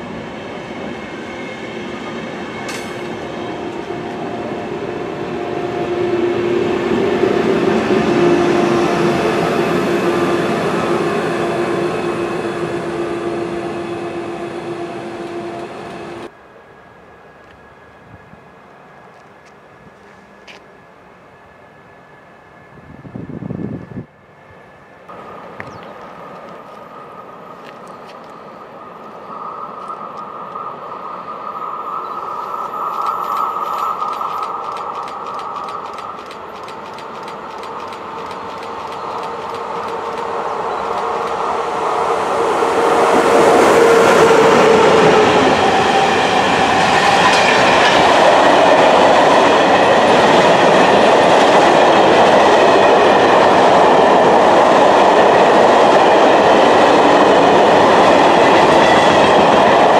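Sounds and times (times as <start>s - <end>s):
electric locomotive passing: 0.0s - 59.9s
wagon wheels clattering on rails: 33.0s - 40.3s.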